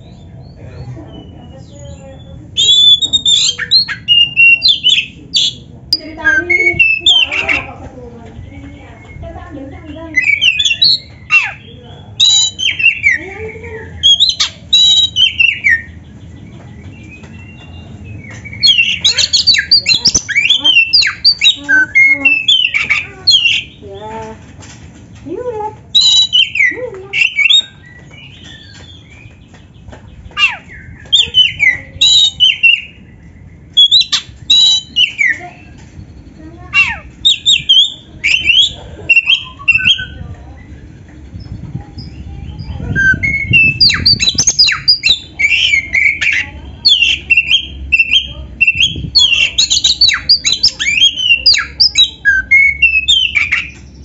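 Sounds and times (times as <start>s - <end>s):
songbird singing whistles and chatter: 0.0s - 24.4s, 25.8s - 54.0s.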